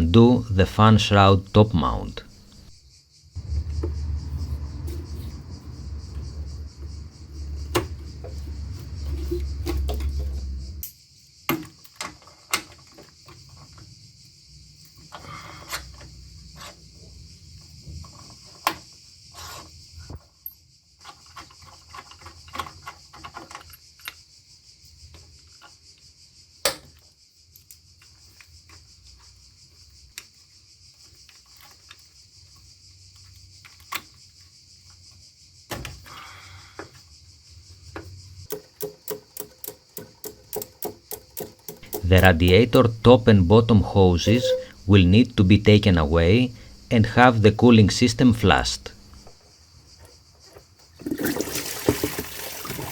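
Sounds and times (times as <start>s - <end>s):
steady high hiss: 0.0s - 11.0s
low rumble: 3.4s - 10.8s
hand tools and plastic clicking: 7.4s - 13.9s, 14.9s - 16.8s, 20.4s - 24.2s, 37.9s - 49.4s.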